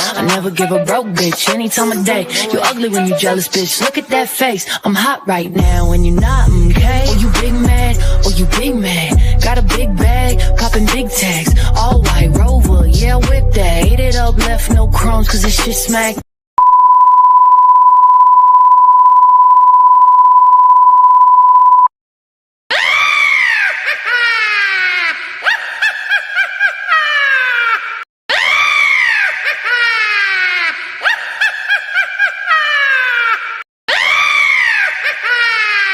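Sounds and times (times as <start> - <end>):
high beep tone: 16.6 - 21.9.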